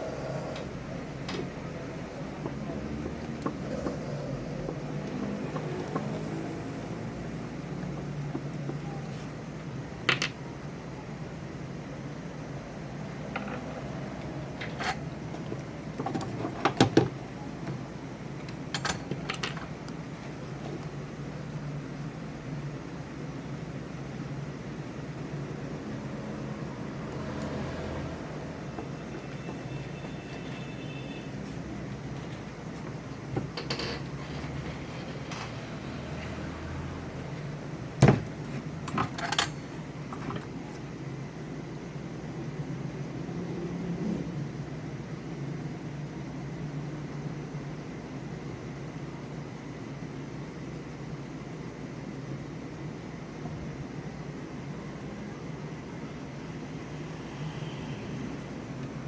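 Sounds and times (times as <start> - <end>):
low electrical hum: 0.0 - 59.0
hand tools clicking and tapping: 0.5 - 9.1.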